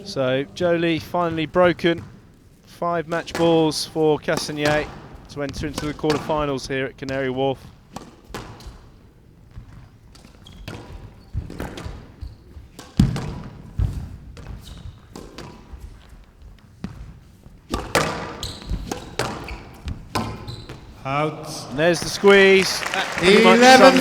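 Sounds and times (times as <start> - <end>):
squash ball hitting rackets and walls: 3.1 - 6.5, 7.1 - 21.0.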